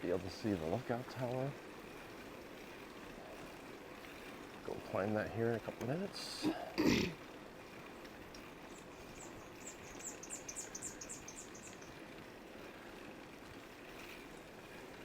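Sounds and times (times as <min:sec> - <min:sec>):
wind and riding noise: 0:00.0 - 0:15.0.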